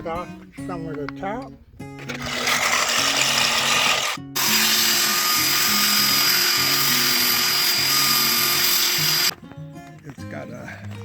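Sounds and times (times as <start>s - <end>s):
background music: 0.0s - 11.0s
power tool cutting wood: 2.0s - 9.3s.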